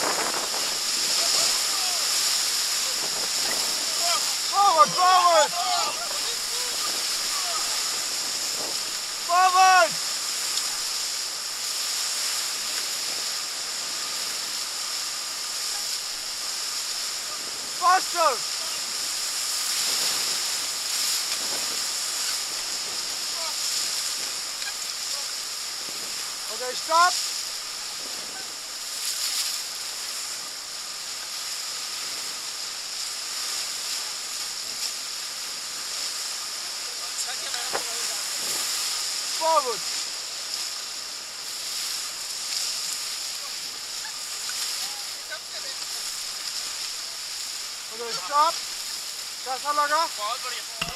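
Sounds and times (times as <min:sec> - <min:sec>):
river rapid rushing: 0:00.0 - 0:50.9.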